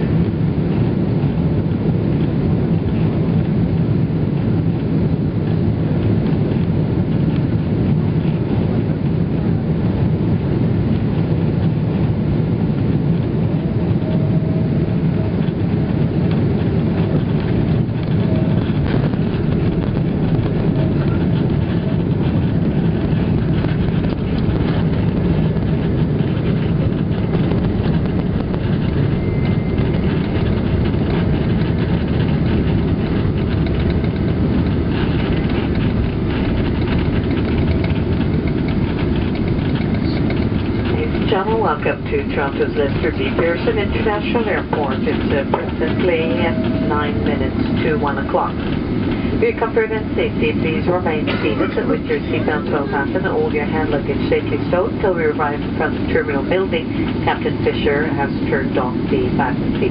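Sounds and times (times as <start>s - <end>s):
aircraft engine noise: 0.0s - 59.9s
wheels rolling on pavement: 15.4s - 41.7s.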